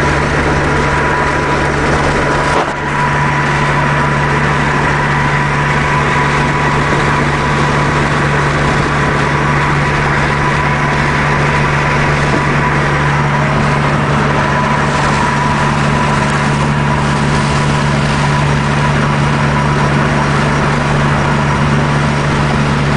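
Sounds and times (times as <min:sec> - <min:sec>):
car engine running steadily: 0:00.0 - 0:22.9.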